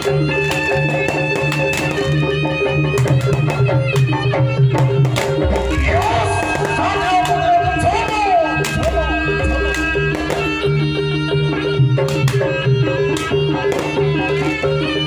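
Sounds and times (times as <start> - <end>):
drum-like percussion: 0.0 - 15.0
wavering melody line: 0.0 - 15.0
held synth tones: 5.6 - 11.4.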